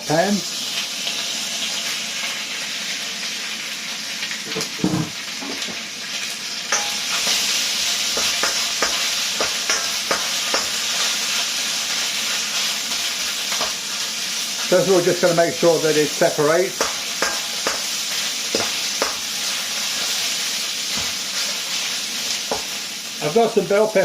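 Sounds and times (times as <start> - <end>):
chicken sizzling in hot oil: 0.0 - 24.0
utensil clicking against pan: 8.2 - 10.8.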